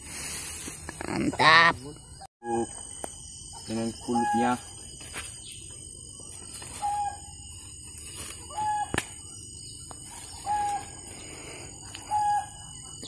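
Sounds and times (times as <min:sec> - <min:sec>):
bird whistled note: 0:06.8 - 0:07.3, 0:12.1 - 0:12.6.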